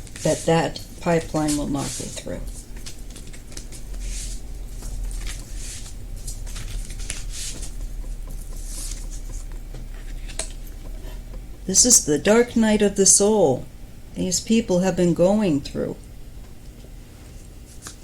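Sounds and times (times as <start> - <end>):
cards being shuffled: 1.6 - 7.8, 17.7 - 18.0.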